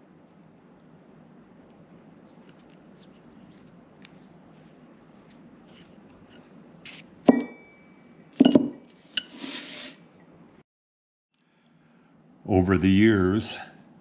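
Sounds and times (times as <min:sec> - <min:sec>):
short scraping hiss: 0:09.2 - 0:10.0.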